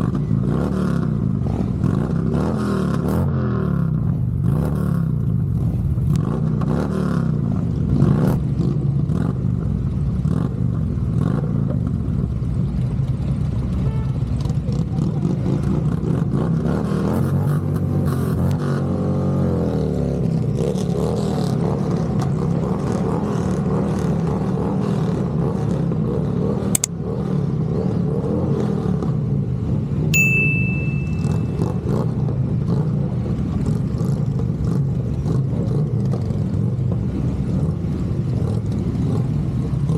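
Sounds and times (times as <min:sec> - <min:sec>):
short high beep: 0:30.2 - 0:31.8
motorcycle engine running: 0:30.2 - 0:39.9.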